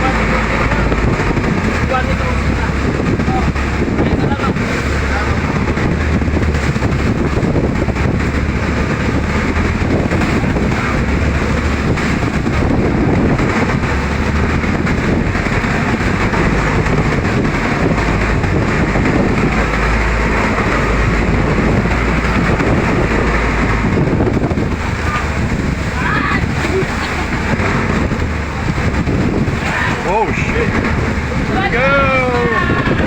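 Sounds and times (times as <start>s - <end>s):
boat engine droning: 0.0s - 33.0s
wind buffeting microphone: 0.0s - 33.0s.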